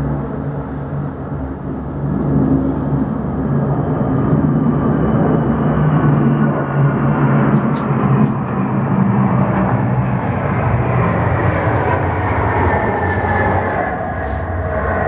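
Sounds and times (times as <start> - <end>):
heavy engines rumbling past: 0.0 - 15.0.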